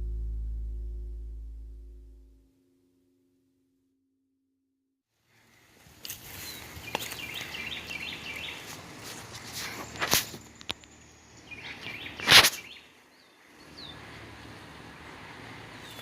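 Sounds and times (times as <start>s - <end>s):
outdoor background noise: 5.2s - 16.0s
songbird chirping: 5.4s - 16.0s.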